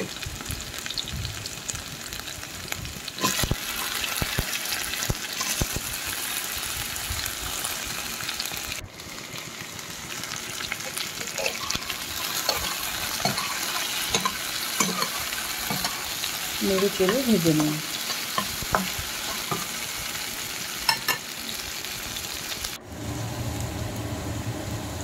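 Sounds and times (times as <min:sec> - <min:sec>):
food sizzling in hot oil: 0:00.0 - 0:25.0
spatula stirring: 0:11.2 - 0:19.8.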